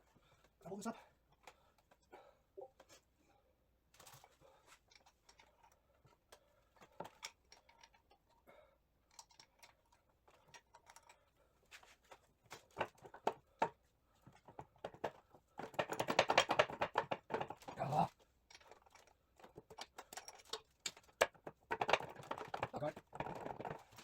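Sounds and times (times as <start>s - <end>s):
metal parts and tools clinking: 4.8s - 5.8s, 6.7s - 8.4s, 9.0s - 11.3s, 17.4s - 24.0s.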